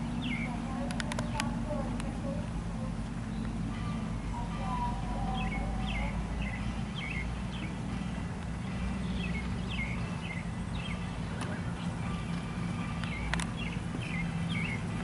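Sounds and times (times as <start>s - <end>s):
bird chirping downward: 0.0s - 1.5s, 5.2s - 7.8s, 8.6s - 12.2s, 12.9s - 15.0s
steady low rumble: 0.0s - 15.0s.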